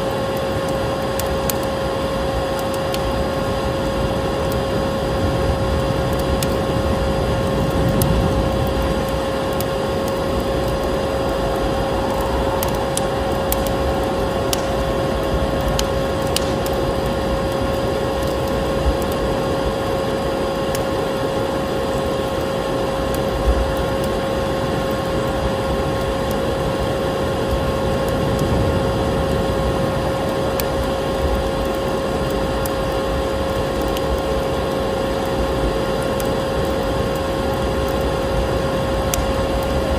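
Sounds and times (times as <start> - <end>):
wood fire crackling and popping: 0.0 - 39.9
vacuum cleaner running: 6.8 - 23.0.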